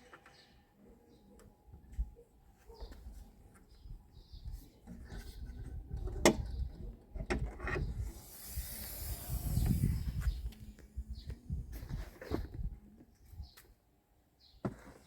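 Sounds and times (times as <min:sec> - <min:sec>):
hissing scrape: 0:08.0 - 0:10.6.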